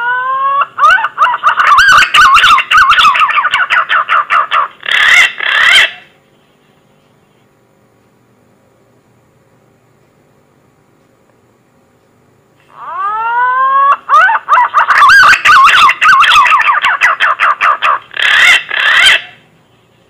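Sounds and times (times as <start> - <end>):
pigeon whistling call: 1.6 - 3.9, 12.8 - 19.4.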